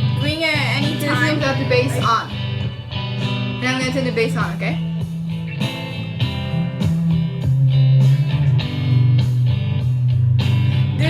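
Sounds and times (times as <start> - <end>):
heavy bass line: 0.0 - 11.0
strummed guitar music on speaker: 0.0 - 11.0.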